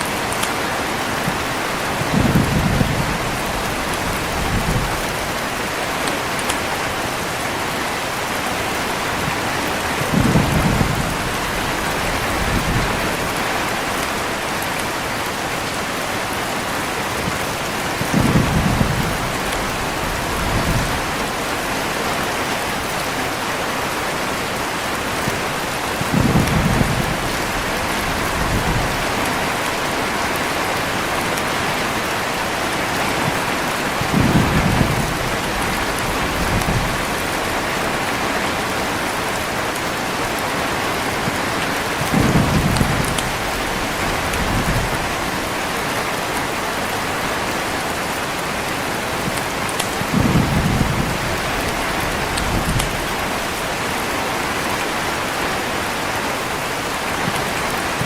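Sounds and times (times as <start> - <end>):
heavy rain: 0.0 - 58.0
thunder rolling: 2.0 - 5.4, 9.9 - 13.8, 17.9 - 21.3, 25.9 - 29.7, 33.1 - 37.6, 42.0 - 45.5, 49.2 - 53.8.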